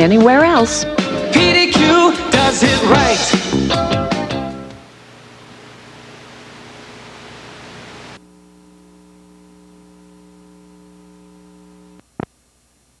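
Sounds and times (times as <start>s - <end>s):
tape hiss: 2.2s - 13.0s
electrical hum: 4.3s - 13.0s.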